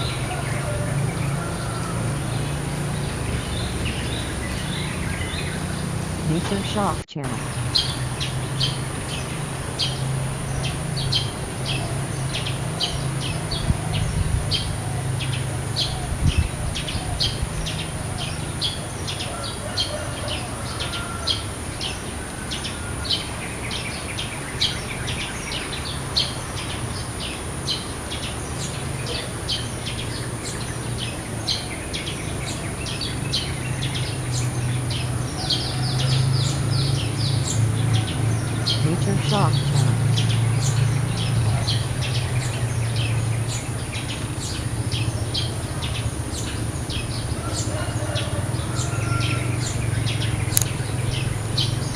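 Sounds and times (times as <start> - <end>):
birds chirping: 0.0 - 51.9.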